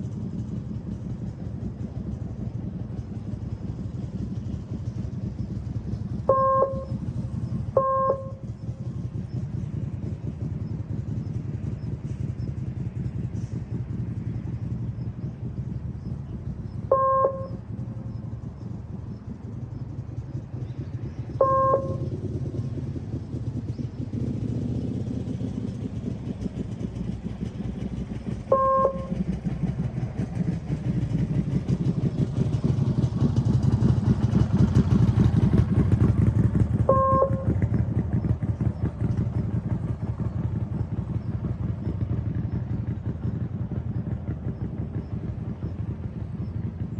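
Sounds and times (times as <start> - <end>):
small motorcycle engine running: 0.0 - 46.9
short loud beeps: 6.3 - 6.9, 7.8 - 8.4, 16.9 - 17.6, 21.4 - 22.1, 28.5 - 29.1, 36.9 - 37.5.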